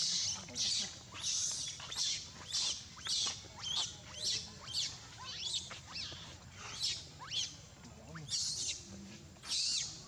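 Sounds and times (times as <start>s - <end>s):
baby monkey screaming: 0.1s - 3.8s, 8.3s - 8.8s, 9.4s - 9.9s.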